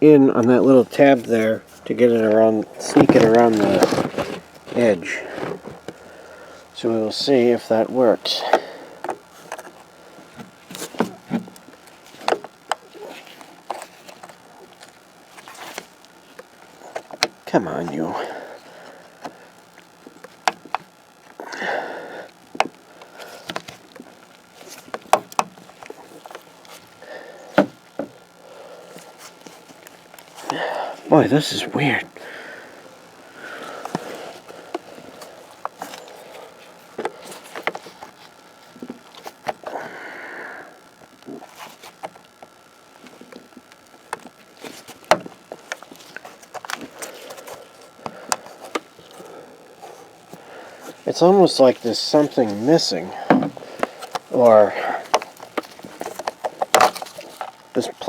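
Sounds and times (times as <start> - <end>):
plastic scrape: 1.0 - 6.8, 8.3 - 20.9, 33.3 - 39.8, 41.3 - 58.0.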